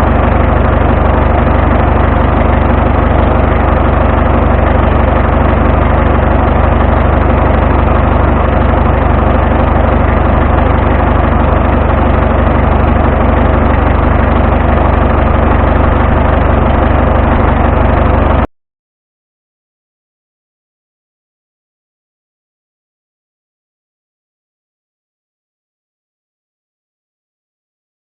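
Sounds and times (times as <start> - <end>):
tractor engine running: 0.0 - 18.5.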